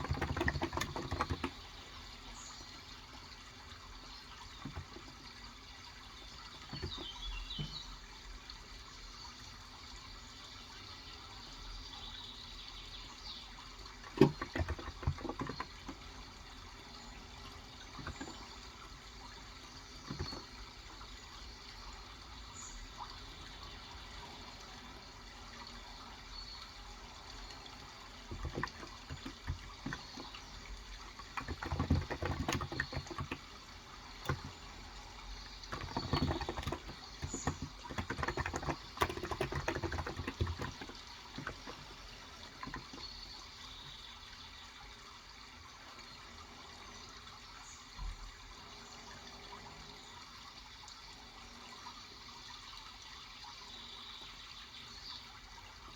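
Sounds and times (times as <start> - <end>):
keyboard typing: 0.0 - 1.6, 28.3 - 30.4, 31.2 - 33.6, 35.6 - 41.9
running water: 0.0 - 55.9.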